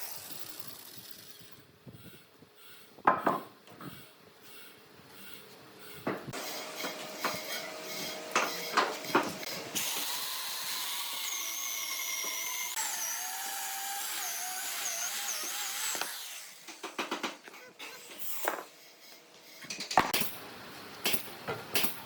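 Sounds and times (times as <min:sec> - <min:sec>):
power tool whining: 0:06.3 - 0:17.2.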